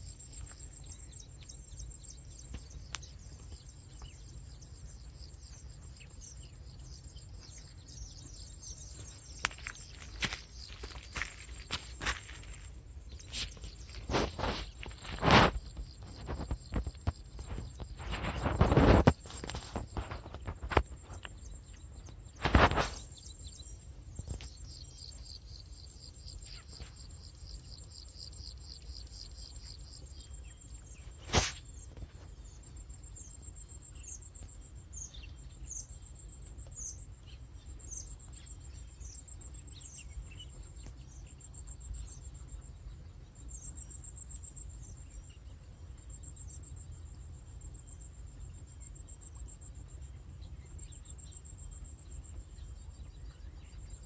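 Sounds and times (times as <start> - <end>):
bird chirps: 0.0 - 54.0
insect buzz: 0.0 - 54.0
insect trill: 0.0 - 54.0.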